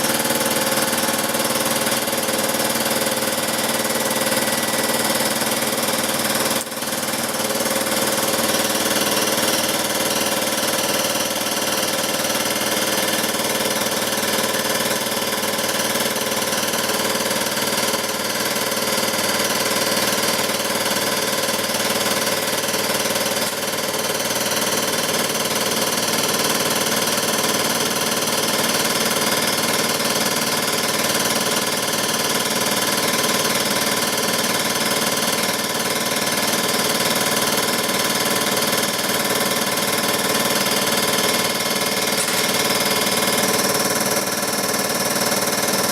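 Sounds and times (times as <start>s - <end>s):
power grinder grinding metal: 39.3s - 44.0s.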